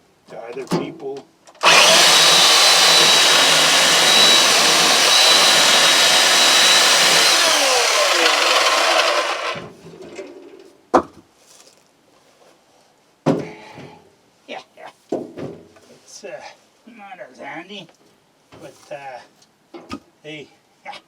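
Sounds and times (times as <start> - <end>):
electric chainsaw cutting wood: 1.6 - 9.7.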